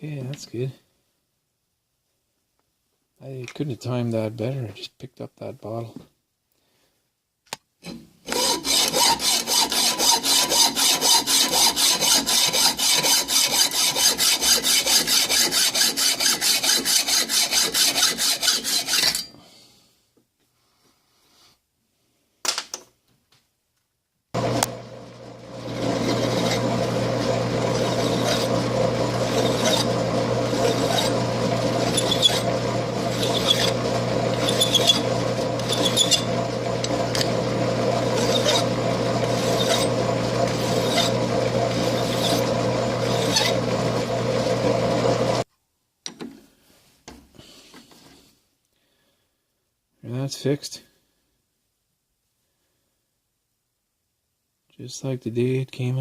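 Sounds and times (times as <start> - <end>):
electric power tool on metal: 8.3 - 19.2, 24.4 - 45.4.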